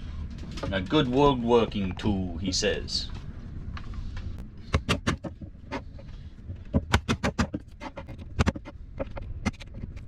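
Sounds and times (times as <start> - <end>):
hammer striking wood: 6.7 - 7.6.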